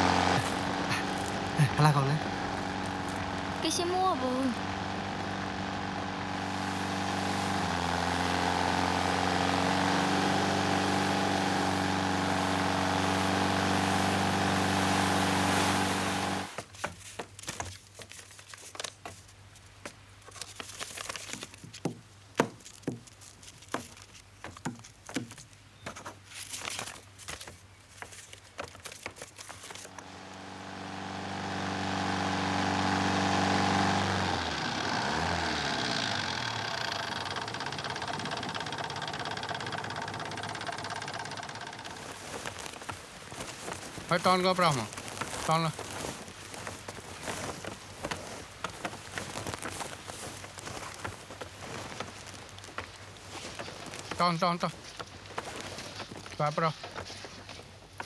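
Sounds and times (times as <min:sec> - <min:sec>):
vehicle engine running: 0:00.0 - 0:16.6, 0:29.7 - 0:54.1.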